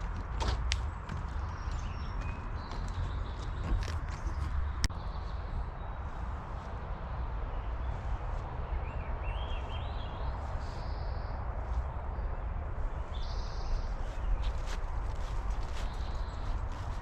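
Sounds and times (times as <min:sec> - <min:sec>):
footsteps on trail: 0:00.0 - 0:04.9, 0:13.2 - 0:17.0
wind rumble: 0:00.0 - 0:17.0.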